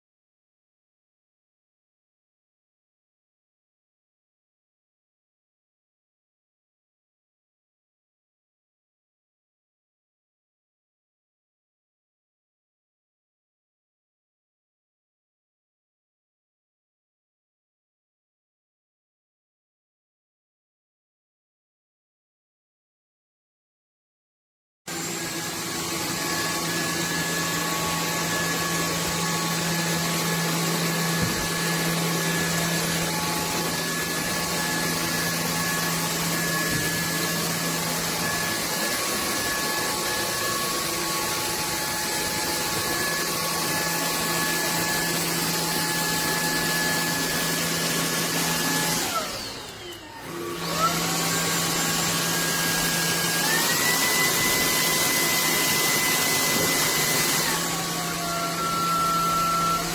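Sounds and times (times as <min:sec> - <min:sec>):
vacuum motor whining: 0:24.9 - 0:59.9.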